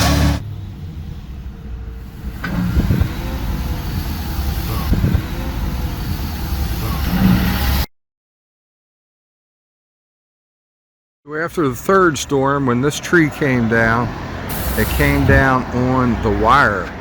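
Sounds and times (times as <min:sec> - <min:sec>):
engine running: 0:00.0 - 0:07.9, 0:11.6 - 0:17.0.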